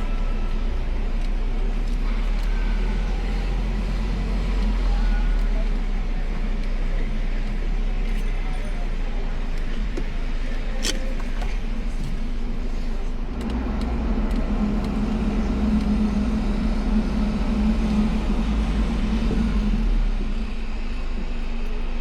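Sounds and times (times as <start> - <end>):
car engine and road rumble: 0.0 - 22.0
sharp click: 10.8 - 11.6.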